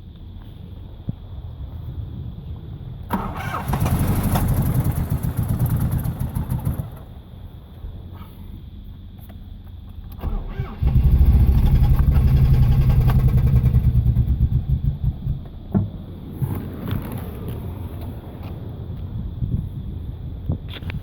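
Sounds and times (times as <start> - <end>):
starter motor cranking engine: 3.1 - 7.0, 10.1 - 15.4.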